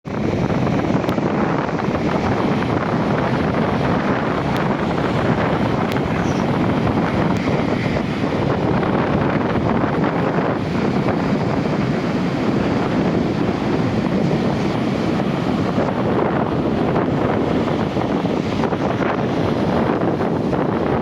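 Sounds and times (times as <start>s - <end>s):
heavy surf breaking: 0.0s - 21.0s
strong wind buffeting microphone: 0.0s - 21.0s.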